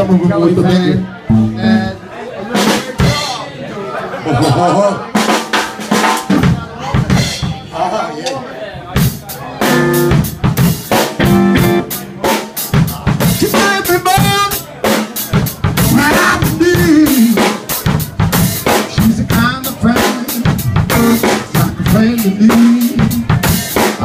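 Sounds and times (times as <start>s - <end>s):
bass: 0.0s - 2.0s, 9.0s - 14.6s, 15.3s - 24.0s
drum kit beat: 0.0s - 3.5s, 4.4s - 7.8s, 8.8s - 24.0s
blues band playing: 0.0s - 3.7s, 4.3s - 7.8s, 8.8s - 24.0s
lead instrument bending notes: 1.2s - 2.0s.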